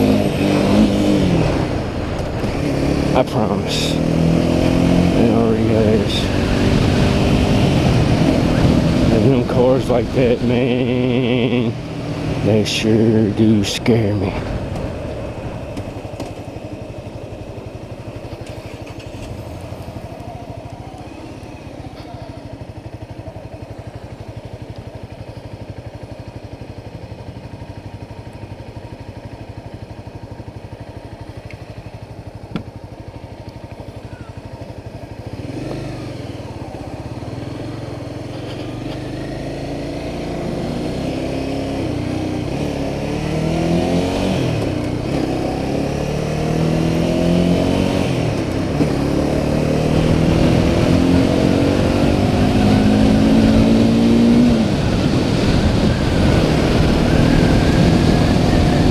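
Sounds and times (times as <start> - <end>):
motorcycle engine running: 0.0 - 58.9
wind noise: 49.9 - 58.9.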